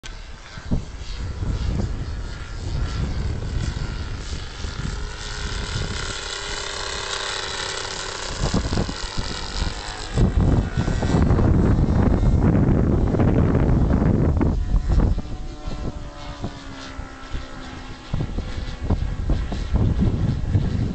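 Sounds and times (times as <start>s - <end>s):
model aircraft engine droning: 0.0s - 20.9s
wind buffeting microphone: 0.0s - 20.9s.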